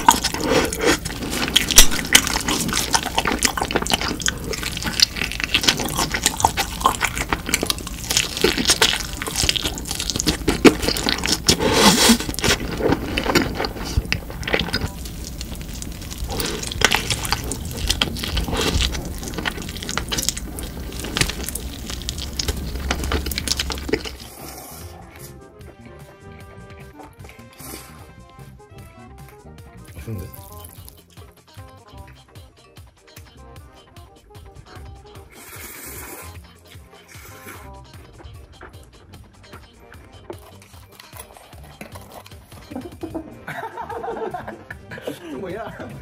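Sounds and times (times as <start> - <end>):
wet chewing and mouth smacking: 0.0 - 25.3, 29.9 - 31.2, 35.3 - 43.1.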